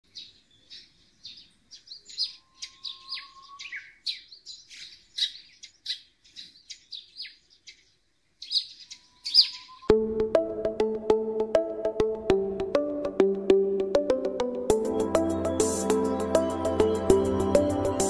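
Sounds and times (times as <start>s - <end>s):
small songbirds chirping: 0.0s - 10.0s, 14.7s - 18.0s.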